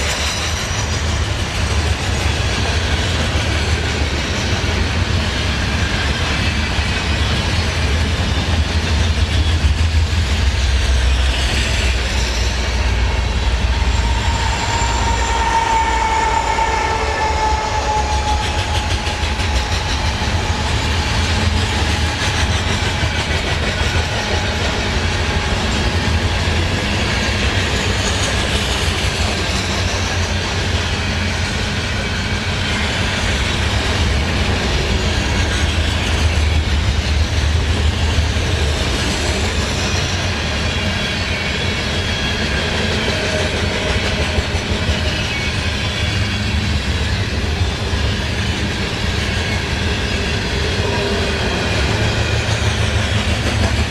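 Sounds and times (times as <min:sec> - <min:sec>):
freight train rumbling past: 0:00.0 - 0:53.9
faint wheel squeal: 0:11.8 - 0:19.7.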